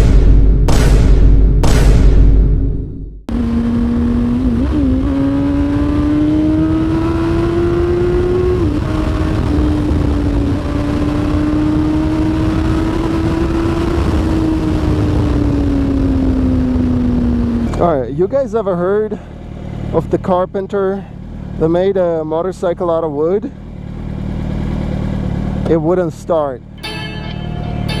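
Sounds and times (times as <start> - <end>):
loud deep sound: 0.0 - 4.4
motorcycle engine running: 0.0 - 28.0
wind noise: 3.3 - 17.7.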